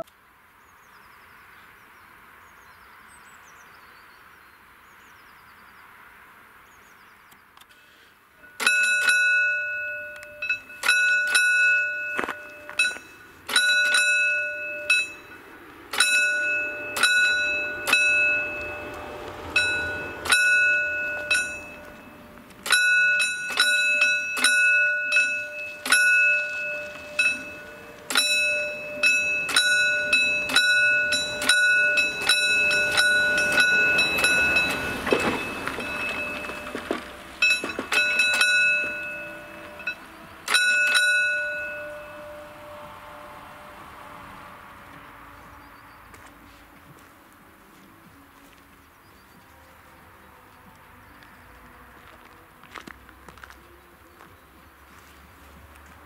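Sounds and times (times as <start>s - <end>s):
level crossing warning bell: 8.4s - 45.0s.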